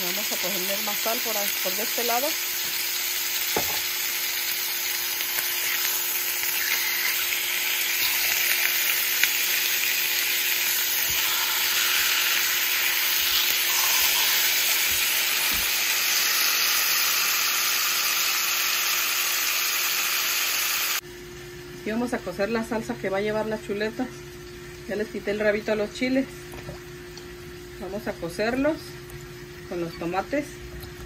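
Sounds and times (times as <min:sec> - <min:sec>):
meat sizzling in oil: 0:00.0 - 0:21.0.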